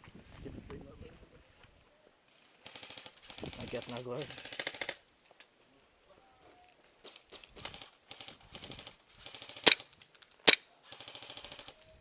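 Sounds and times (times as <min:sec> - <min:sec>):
airsoft gun rapid clicking shots: 0:02.6 - 0:05.0, 0:07.1 - 0:11.8.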